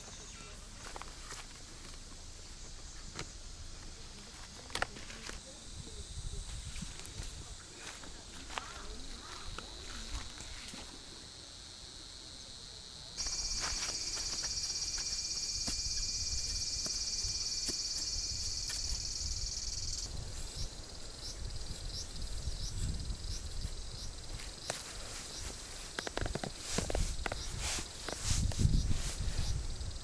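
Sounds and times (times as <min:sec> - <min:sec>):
insects buzzing chorus: 0:00.0 - 0:30.0
insect high trill: 0:13.2 - 0:26.1.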